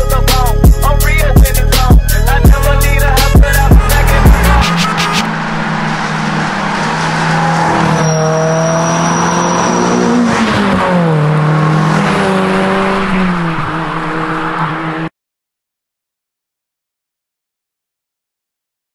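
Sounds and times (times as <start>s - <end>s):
car engine running: 0.0s - 15.1s.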